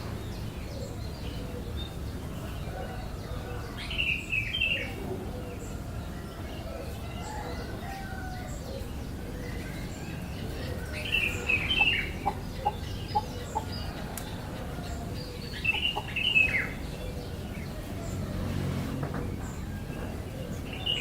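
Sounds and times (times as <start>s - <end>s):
bird chirping: 8.4s - 18.3s.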